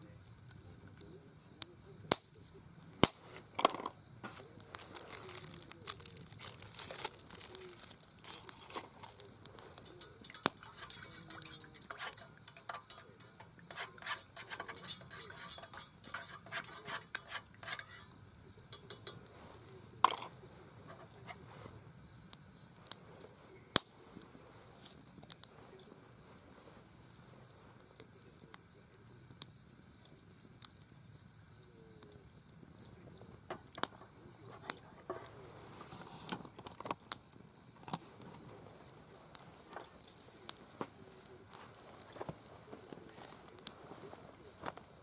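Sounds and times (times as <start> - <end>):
dishes and utensils clinking: 9.8 - 18.0.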